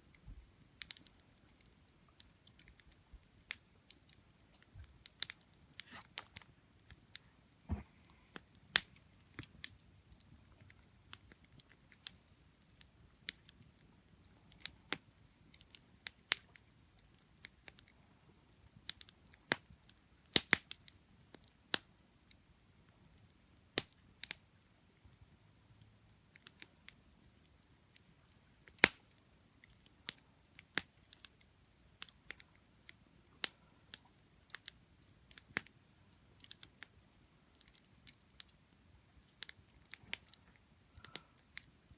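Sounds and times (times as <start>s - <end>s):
campfire crackling: 0.1s - 41.9s.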